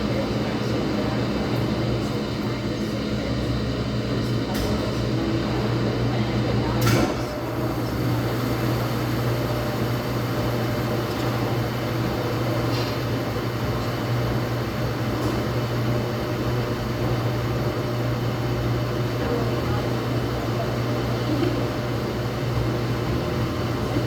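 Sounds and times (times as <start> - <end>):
washing machine humming: 0.0 - 24.0.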